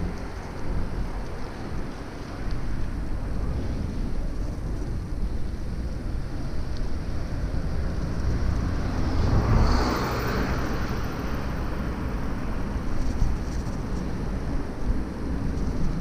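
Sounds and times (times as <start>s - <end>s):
street traffic: 0.0s - 16.0s
wind and road noise rumble: 0.0s - 16.0s
vehicle passing close: 7.0s - 12.3s.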